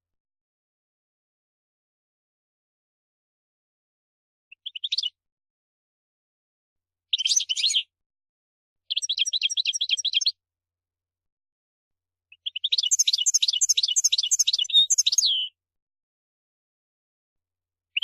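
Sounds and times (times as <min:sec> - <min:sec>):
finch singing trilled twittering: 0:07.1 - 0:07.8, 0:08.9 - 0:10.3, 0:12.3 - 0:15.5.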